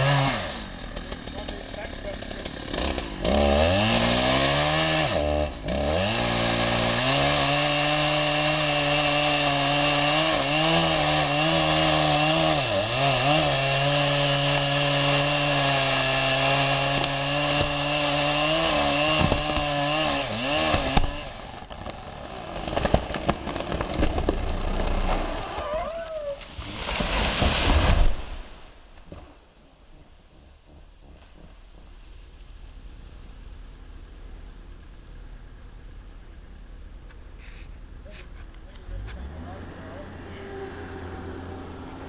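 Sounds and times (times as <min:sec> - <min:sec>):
chainsaw cutting wood: 0:00.0 - 0:29.3
wood cracks and knocks: 0:19.0 - 0:19.8, 0:20.6 - 0:25.6.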